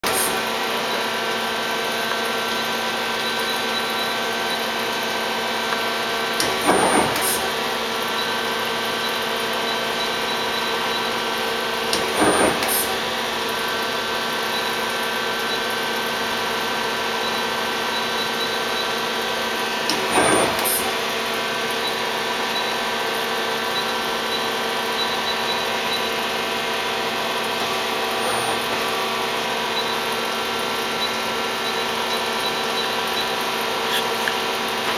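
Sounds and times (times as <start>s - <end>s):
steady machine hum: 0.0s - 15.1s, 23.5s - 34.9s.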